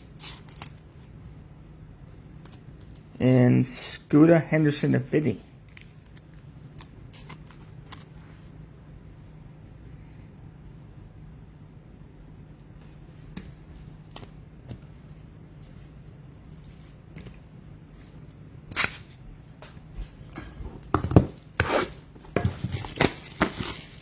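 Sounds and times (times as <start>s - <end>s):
cards rustling and sliding: 0.0s - 1.1s, 5.7s - 8.4s.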